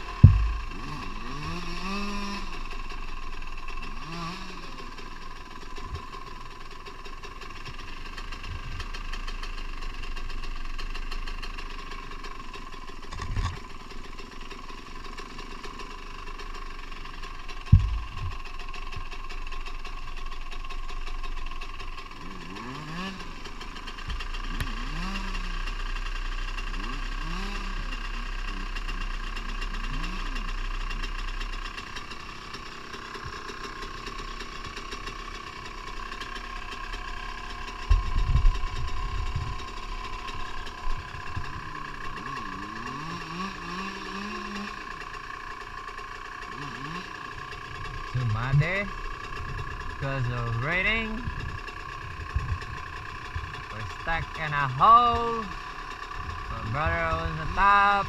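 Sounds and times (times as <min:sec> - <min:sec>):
engine revving: 0:00.0 - 0:06.4, 0:14.6 - 0:58.0
dirt bike engines idling: 0:00.0 - 0:58.0
sharp knocks: 0:00.2 - 0:00.9, 0:17.7 - 0:18.4.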